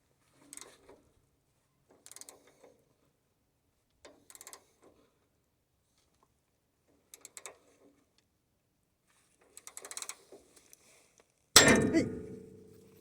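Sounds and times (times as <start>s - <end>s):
faint tool clicks and scraping: 0.3s - 1.1s, 1.9s - 3.2s, 9.1s - 11.4s
loud metallic clang: 11.6s - 12.8s.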